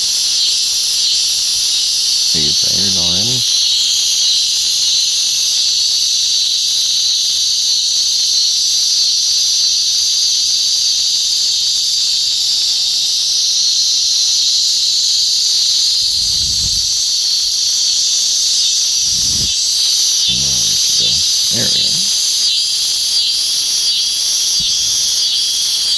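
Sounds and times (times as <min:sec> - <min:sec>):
cicadas buzzing: 0:00.0 - 0:05.1, 0:14.6 - 0:25.9.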